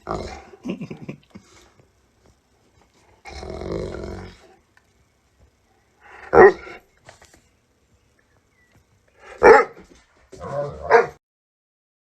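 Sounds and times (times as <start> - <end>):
dog barking: 6.2 - 6.8, 9.3 - 9.8, 10.4 - 11.2.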